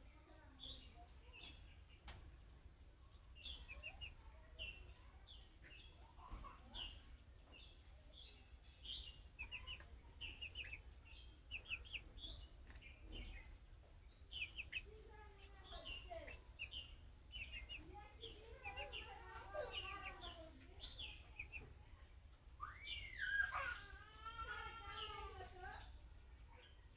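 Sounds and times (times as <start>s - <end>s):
budgerigars chirping: 8.8s - 13.5s, 14.1s - 15.0s, 15.7s - 21.6s.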